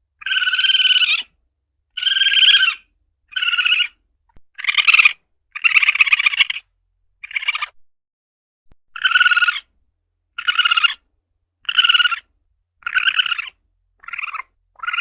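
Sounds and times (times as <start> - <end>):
civet harsh buzzing calls: 0.2 - 1.3, 2.0 - 4.0, 4.6 - 6.6, 7.2 - 7.8, 9.0 - 9.7, 10.4 - 11.0, 11.6 - 15.0.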